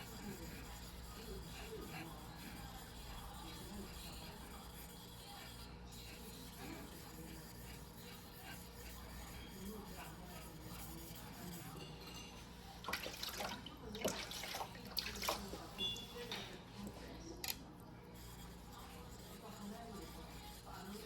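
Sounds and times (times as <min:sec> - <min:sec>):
knife scraping on wet whetstone: 0:00.0 - 0:16.0.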